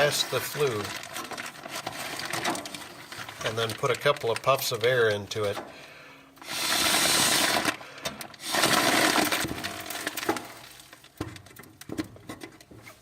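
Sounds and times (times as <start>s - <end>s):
plastic crinkling and clicking: 0.0s - 5.7s, 7.6s - 8.4s, 9.1s - 13.0s.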